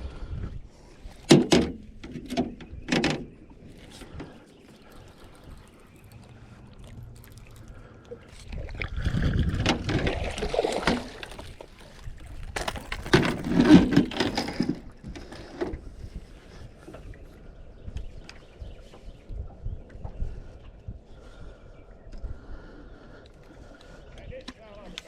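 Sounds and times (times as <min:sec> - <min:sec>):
water splashing beside a boat: 0:00.7 - 0:17.4.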